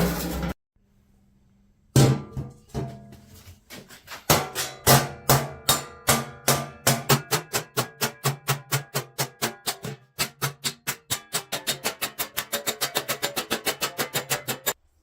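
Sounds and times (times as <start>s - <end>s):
hammer striking steel on anvil: 4.3s - 14.8s.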